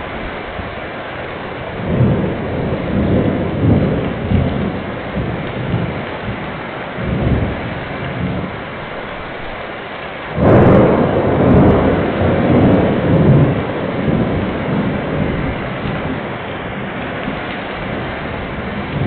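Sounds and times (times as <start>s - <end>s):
heavy rain: 0.0s - 19.0s
low thunder rumbling: 1.6s - 9.6s, 10.3s - 19.0s
loud thunderclap: 1.8s - 6.4s, 10.3s - 19.0s.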